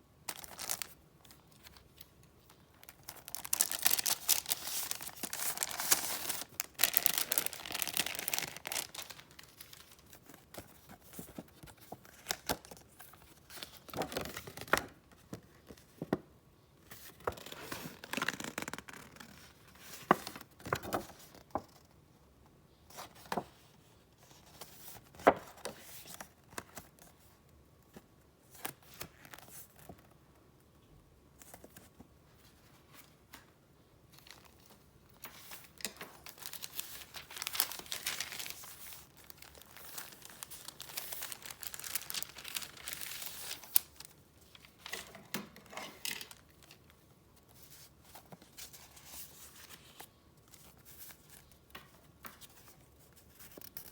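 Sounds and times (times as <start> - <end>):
paper rustling and crinkling: 0.3 - 16.0, 34.1 - 53.9.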